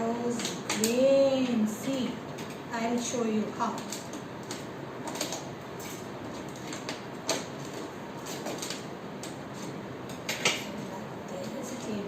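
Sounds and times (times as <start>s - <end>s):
plastic rustling and scraping: 3.6s - 12.0s.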